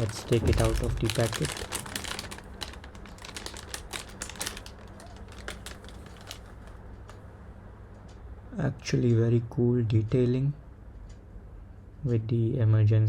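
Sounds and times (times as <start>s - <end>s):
plastic packet crinkling: 0.0s - 7.2s.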